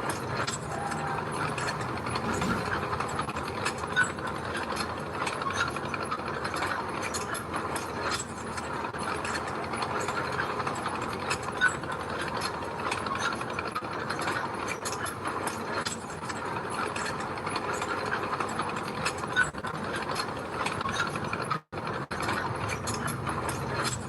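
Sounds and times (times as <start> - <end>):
bulldozer engine: 0.0 - 5.2, 22.0 - 24.0
crawler tracks clanking: 0.0 - 24.0.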